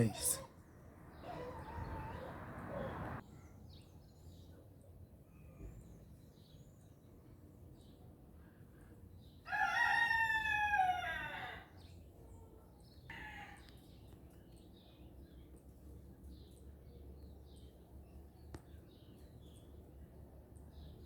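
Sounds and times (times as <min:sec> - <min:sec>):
rooster crowing: 0:09.5 - 0:11.7.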